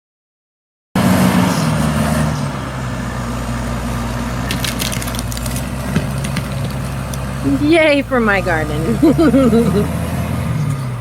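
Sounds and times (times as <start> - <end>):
bulldozer diesel engine running: 1.0 - 11.0
sharp crackles: 4.4 - 7.3.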